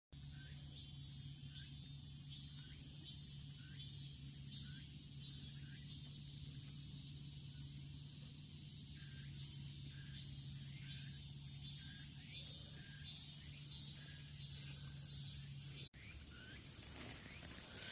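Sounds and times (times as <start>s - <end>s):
steady low hum: 0.2s - 17.9s.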